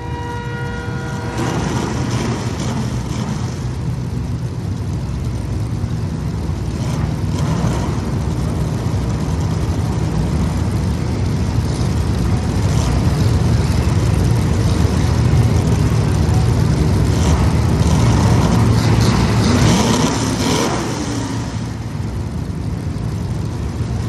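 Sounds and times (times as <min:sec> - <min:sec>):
race car engines droning: 0:00.0 - 0:24.0.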